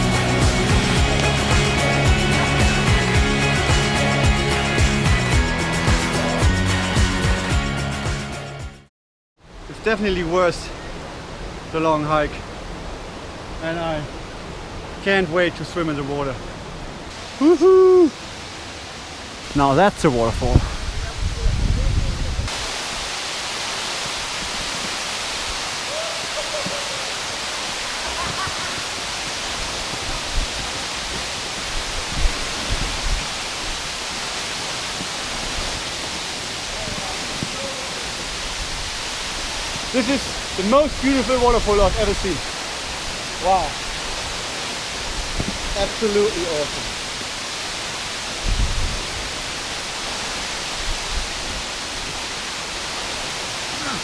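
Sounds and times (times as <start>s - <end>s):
low bumps: 0.0s - 4.5s
waterfall rushing: 0.0s - 7.5s, 9.8s - 54.0s.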